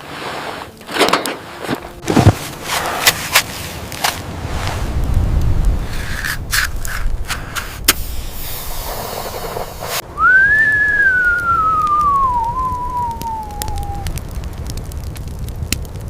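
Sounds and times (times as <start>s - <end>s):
knocks and handling noise: 0.6s - 4.8s
gliding whistling tone: 9.4s - 14.1s.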